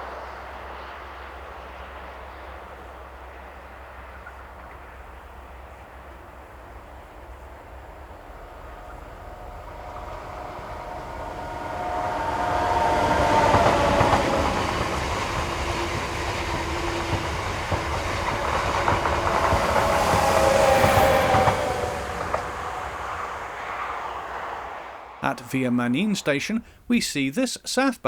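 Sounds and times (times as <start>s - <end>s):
train passing: 0.0s - 28.0s
wheels clicking over rail joints: 3.9s - 24.7s.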